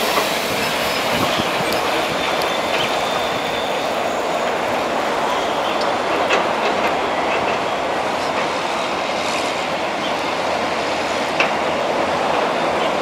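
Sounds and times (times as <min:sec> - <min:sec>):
train wheels on rails: 0:00.0 - 0:13.0.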